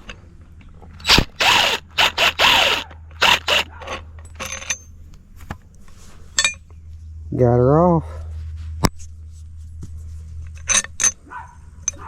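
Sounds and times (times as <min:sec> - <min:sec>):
steady low hum: 0:00.0 - 0:12.0
metal scraping and grinding: 0:01.0 - 0:05.0.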